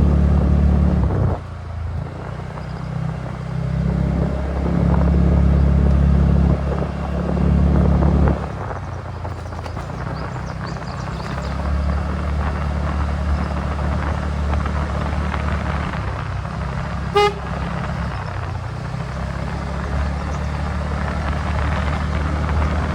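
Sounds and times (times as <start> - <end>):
road rumble: 0.0 - 22.9
scooter engine running: 0.0 - 22.9
short horn toot: 17.1 - 17.9.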